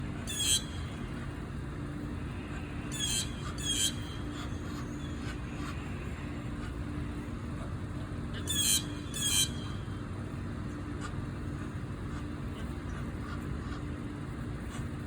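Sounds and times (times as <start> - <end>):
steady low hum: 0.0 - 15.0
goose high-pitched calls: 0.2 - 1.2, 2.4 - 6.8, 8.3 - 9.9.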